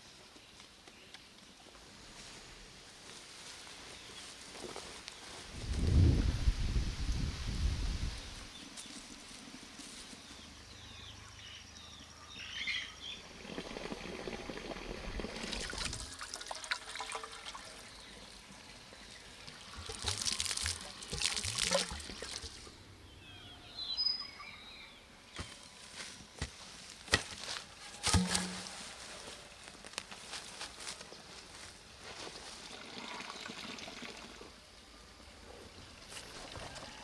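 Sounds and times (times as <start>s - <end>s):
water pouring and trickling: 13.3s - 22.7s, 32.3s - 34.6s.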